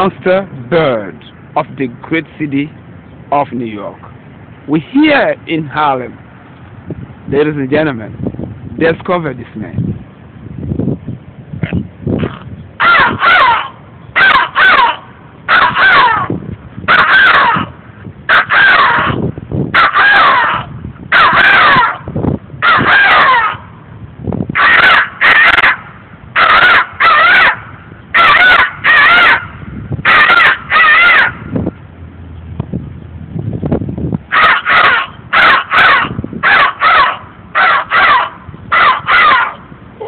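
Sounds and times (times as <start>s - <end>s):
man imitating crow caws: 11.6s - 22.0s, 22.6s - 23.7s, 24.6s - 25.8s, 26.4s - 27.6s, 28.2s - 31.4s, 34.3s - 40.0s.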